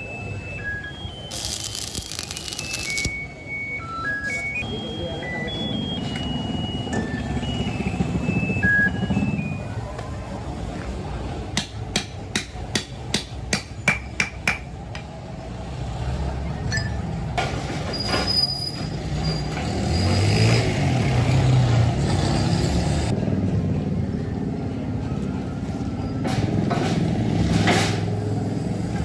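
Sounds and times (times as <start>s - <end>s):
hammer striking metal: 11.6s - 14.7s.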